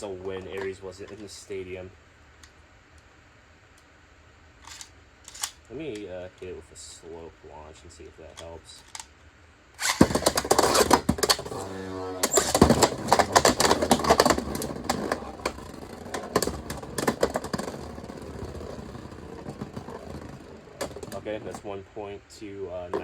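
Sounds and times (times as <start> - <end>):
spinning tops whirring: 9.8 - 21.6.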